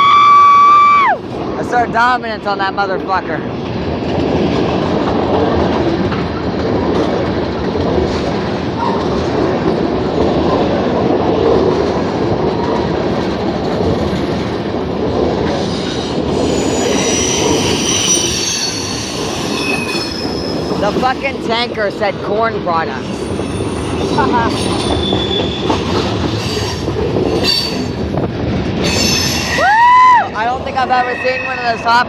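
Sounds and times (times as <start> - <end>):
freight train wheels rumbling: 0.0 - 32.0
train wheels squealing: 15.7 - 21.3, 23.1 - 28.0, 28.8 - 32.0.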